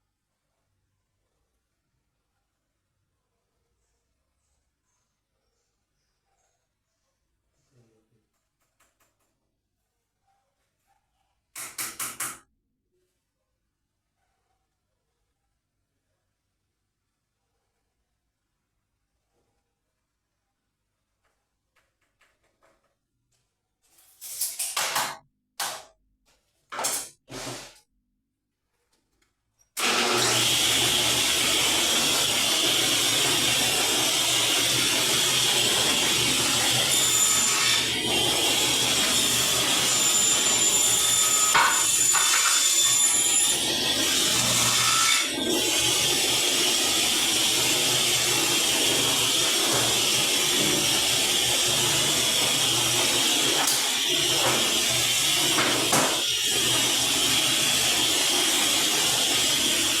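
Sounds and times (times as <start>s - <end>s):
electric saw cutting board: 29.8s - 60.0s.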